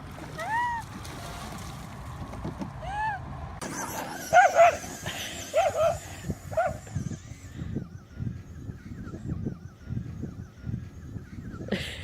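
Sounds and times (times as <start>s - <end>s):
dog barking: 4.3s - 4.8s, 5.5s - 6.8s.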